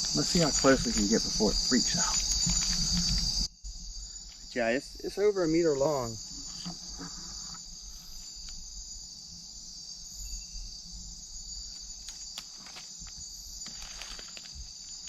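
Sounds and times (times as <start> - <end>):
night insects trilling: 0.0 - 15.0
faint clicks and rustles: 2.0 - 3.5, 11.7 - 15.0.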